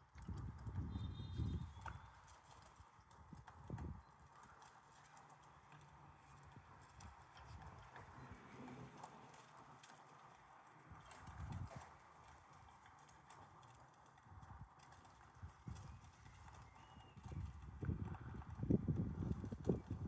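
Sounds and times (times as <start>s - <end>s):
pigeons pecking and shuffling: 0.3s - 20.0s.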